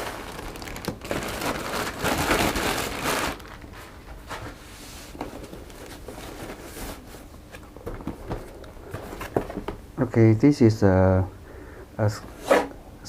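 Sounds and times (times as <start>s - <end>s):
packaging crinkling and rustling: 0.0s - 4.5s.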